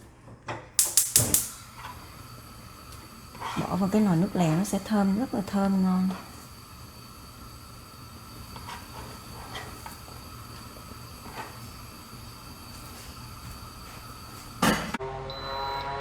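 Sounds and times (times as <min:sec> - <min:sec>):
sharp click: 0:00.8 - 0:01.6
shallots sizzling in oil: 0:00.8 - 0:14.6.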